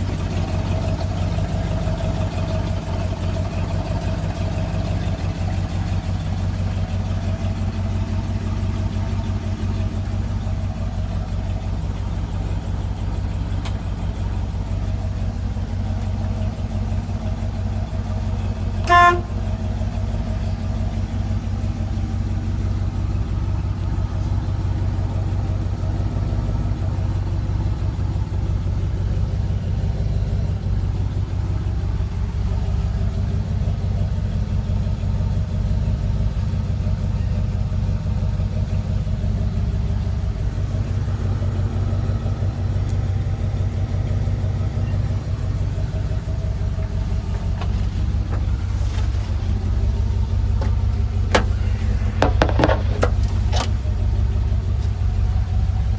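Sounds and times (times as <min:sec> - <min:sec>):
pickup truck engine running: 0:00.0 - 0:55.9
truck horn toot: 0:18.7 - 0:19.9.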